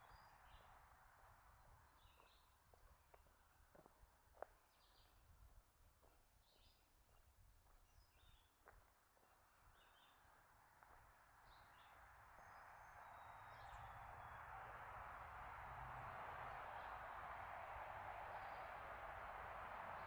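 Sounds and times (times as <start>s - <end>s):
songbirds chirping: 1.9s - 3.8s, 6.0s - 15.3s.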